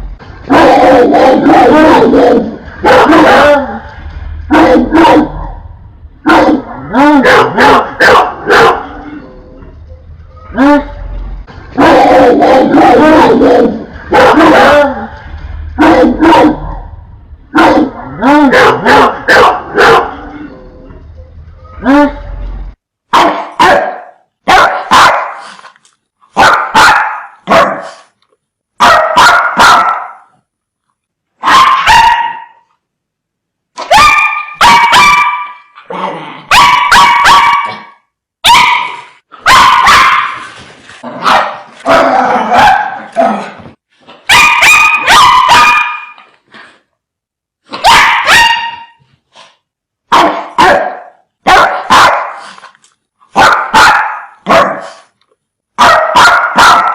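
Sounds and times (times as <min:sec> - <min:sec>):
dogs barking fiercely: 0:00.0 - 0:09.2, 0:10.5 - 0:20.4, 0:23.1 - 0:25.6, 0:26.3 - 0:28.1, 0:28.8 - 0:30.3, 0:31.4 - 0:32.6, 0:33.8 - 0:43.6, 0:44.2 - 0:46.4, 0:47.7 - 0:49.0, 0:50.1 - 0:52.7, 0:53.3 - 0:55.2, 0:55.8 - 0:56.9.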